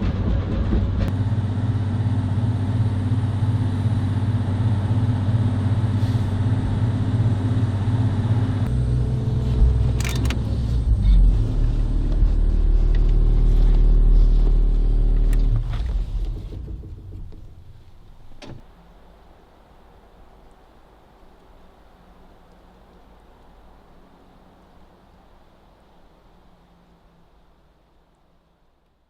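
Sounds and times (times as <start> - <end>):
engine running: 0.0 - 19.4.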